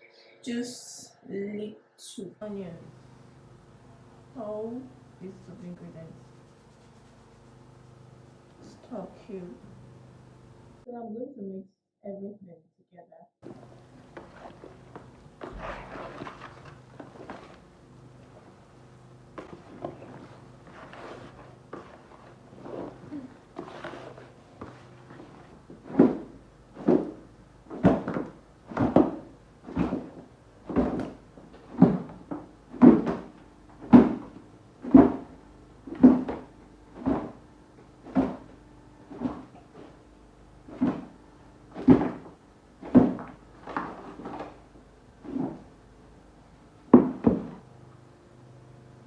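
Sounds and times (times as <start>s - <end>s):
dull thumps of hand mixing: 6.2s - 9.0s, 13.4s - 18.7s, 19.3s - 45.7s.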